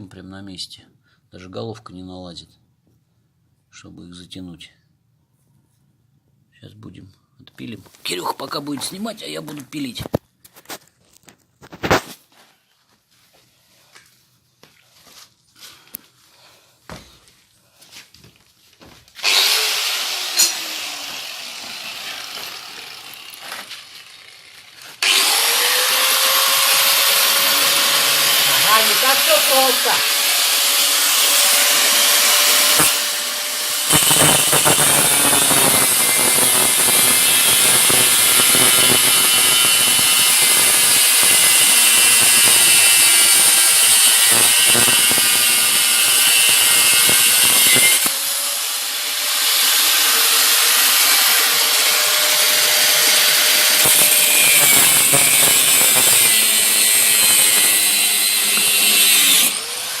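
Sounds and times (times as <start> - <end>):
angle grinder cutting steel: 19.2 - 60.0.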